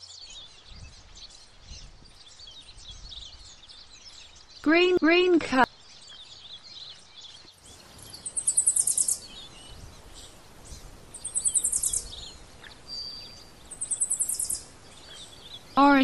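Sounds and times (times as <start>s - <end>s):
faint bird chirps: 0.0s - 16.0s
bird trilling: 7.7s - 16.0s
bird whistle: 8.1s - 9.3s, 11.2s - 12.2s, 13.8s - 14.6s.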